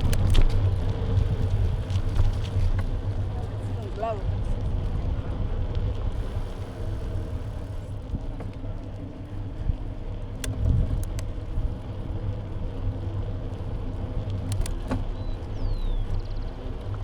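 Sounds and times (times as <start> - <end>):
bike riding rumble: 0.0 - 17.0.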